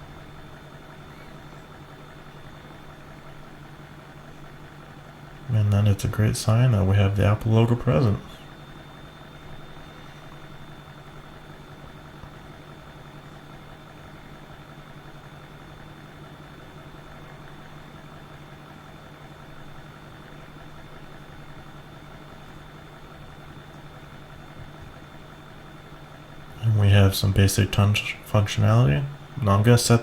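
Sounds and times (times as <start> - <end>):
faint high-pitched whine: 0.0 - 4.6
low electrical hum: 0.0 - 30.0.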